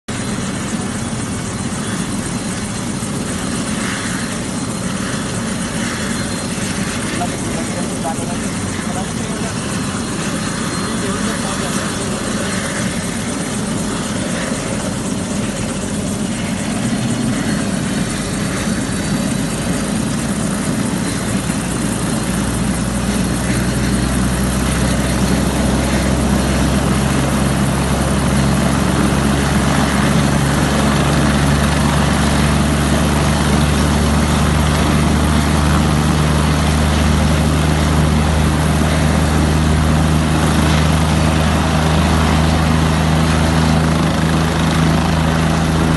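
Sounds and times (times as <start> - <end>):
helicopter rotor and turbine: 0.0 - 45.9.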